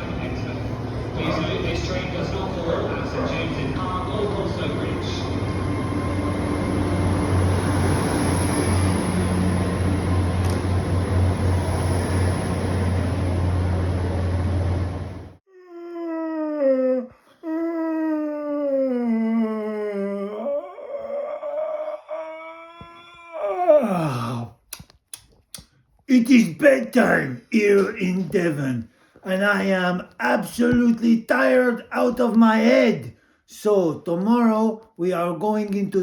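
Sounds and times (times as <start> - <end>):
train rumble with low hum: 0.0 - 15.4.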